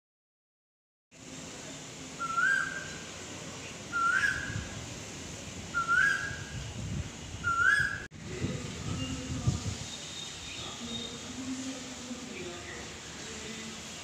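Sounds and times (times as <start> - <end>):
bird whistled call: 2.2 - 3.0, 3.9 - 4.6, 5.8 - 6.5, 7.4 - 8.1.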